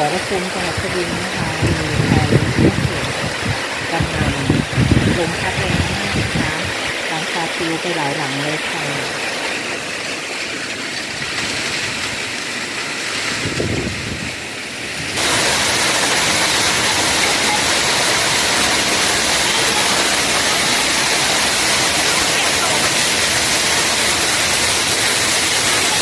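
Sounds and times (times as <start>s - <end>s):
strong wind: 0.0s - 7.1s, 13.2s - 24.1s
heavy rain: 0.0s - 26.0s.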